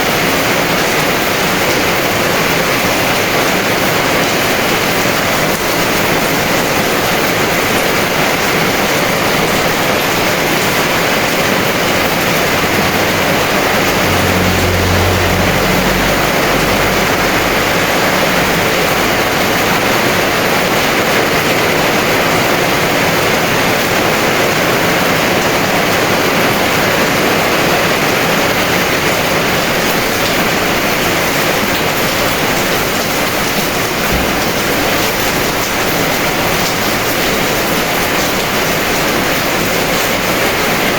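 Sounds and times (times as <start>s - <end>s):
heavy rain hissing: 0.1s - 40.9s
low rumble: 11.2s - 20.2s, 33.7s - 35.8s.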